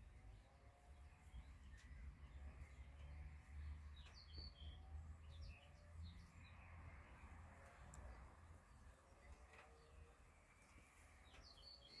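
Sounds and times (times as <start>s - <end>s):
faint bird chirps: 8.9s - 12.0s.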